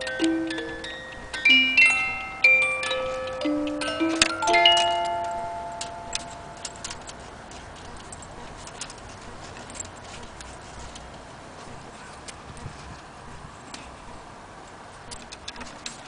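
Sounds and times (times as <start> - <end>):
clock ringing notes: 0.0 - 7.2
cuckoo clock ticking: 0.0 - 7.3.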